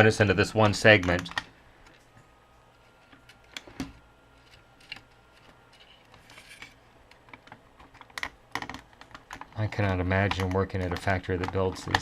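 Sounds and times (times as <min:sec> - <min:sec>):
plastic pieces clicking and tapping: 0:04.4 - 0:12.0.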